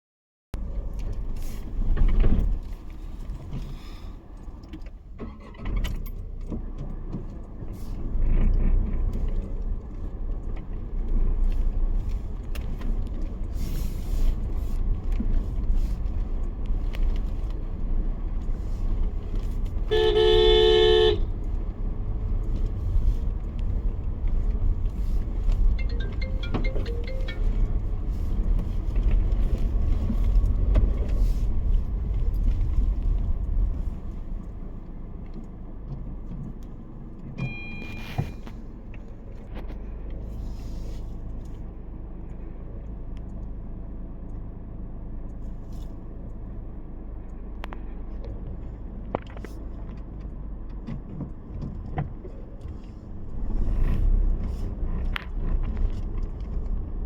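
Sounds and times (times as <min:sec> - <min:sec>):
road traffic rumble: 0:00.6 - 0:57.0
car horn honking: 0:19.9 - 0:21.4, 0:37.5 - 0:38.4.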